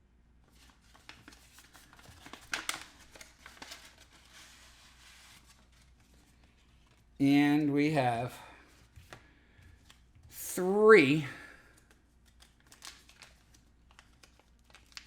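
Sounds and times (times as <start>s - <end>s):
packaging crinkling and rustling: 0.5s - 7.2s, 11.7s - 15.0s.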